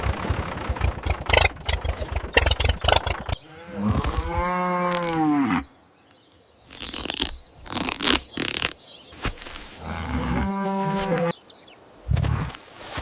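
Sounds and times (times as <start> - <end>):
cow mooing: 3.4 - 5.7, 9.8 - 11.3.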